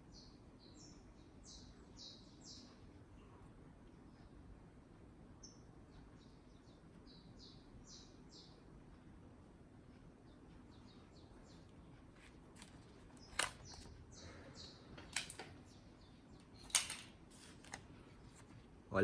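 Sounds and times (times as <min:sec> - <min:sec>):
faint bird chirps: 0:00.0 - 0:04.4, 0:05.3 - 0:08.7, 0:10.1 - 0:12.2, 0:12.8 - 0:16.7
sharp clicks: 0:11.5 - 0:14.0.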